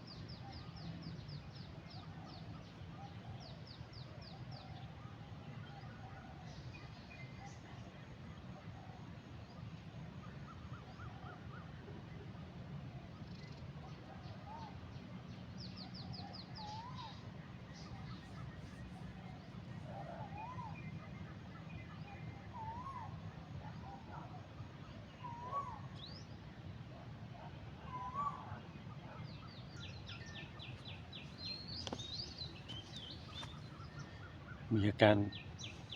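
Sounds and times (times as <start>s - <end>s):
birds calling faintly: 13.0s - 35.9s.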